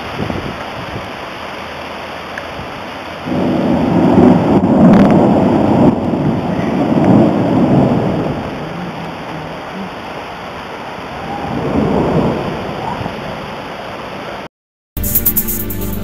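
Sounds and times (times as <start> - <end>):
rain hissing: 0.0 - 14.4
thunder rumbling: 3.2 - 9.2, 11.1 - 13.5.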